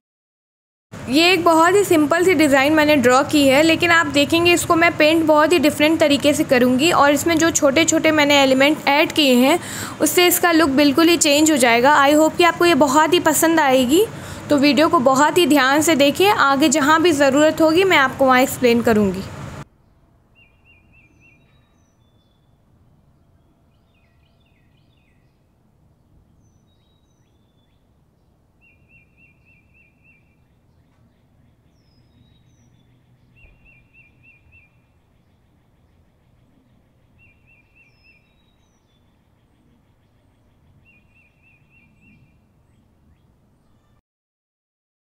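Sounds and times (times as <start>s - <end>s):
faint low background noise: 1.0s - 44.0s
faint bird trills and chirps: 19.7s - 44.0s.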